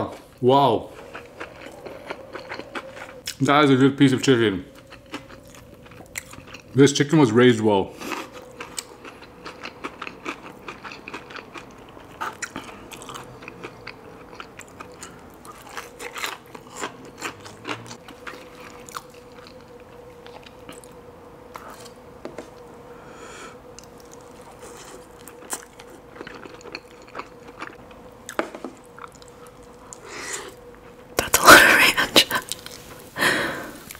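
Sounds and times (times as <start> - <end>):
faint steady hum: 0.0 - 33.9
chewing crunchy chicken: 0.9 - 3.4, 4.7 - 6.8, 8.0 - 22.0, 23.7 - 30.1.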